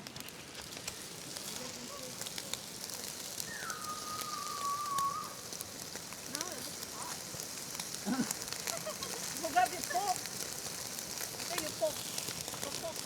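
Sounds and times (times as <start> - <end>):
fire crackling and popping: 0.0 - 13.0
whistling tone: 3.4 - 5.4.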